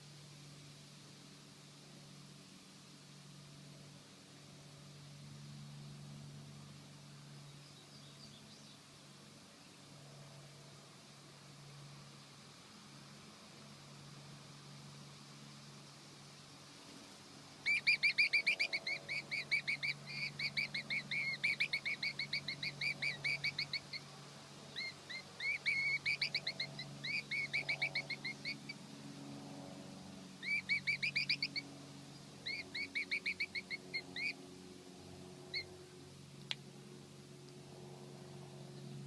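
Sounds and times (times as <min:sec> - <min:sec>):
chicks begging with high chirps: 0:17.6 - 0:28.9, 0:30.3 - 0:34.4, 0:35.4 - 0:35.8.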